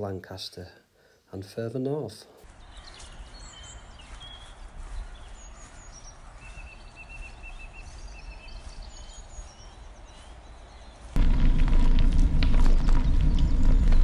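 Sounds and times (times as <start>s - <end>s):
small birds chirping: 1.0s - 11.2s, 12.5s - 14.0s
low outdoor rumble: 11.1s - 14.0s.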